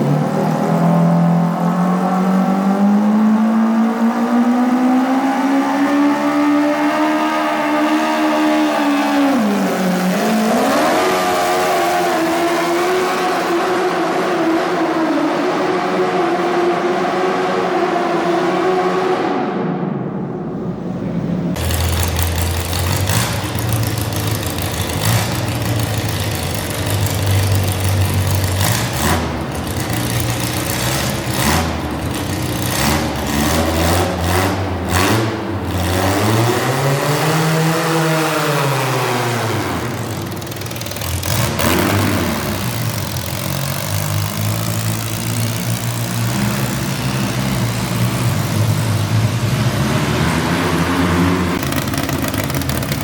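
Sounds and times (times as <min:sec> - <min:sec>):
garden tractor engine revving: 0:21.6 - 0:53.0.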